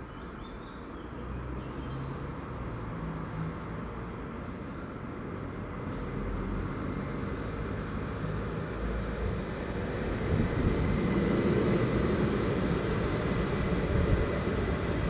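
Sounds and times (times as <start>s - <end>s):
train rumbling: 9.0s - 15.0s.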